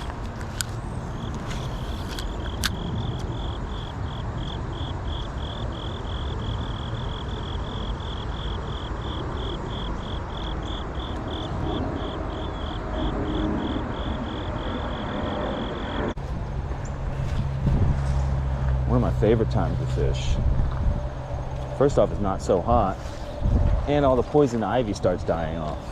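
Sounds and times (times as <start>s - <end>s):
low rumbling noise: 0.0s - 25.9s
insect chirping: 0.8s - 16.0s.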